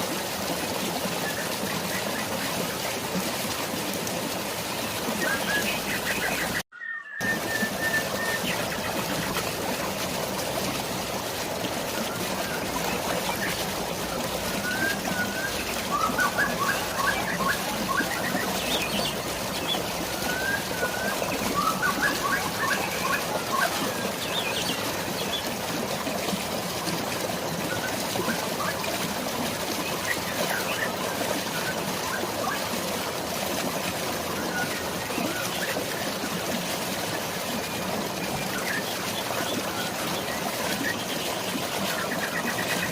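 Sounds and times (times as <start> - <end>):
rain and falling water: 0.0 - 42.9
birds chirping: 4.9 - 9.5, 12.0 - 25.6.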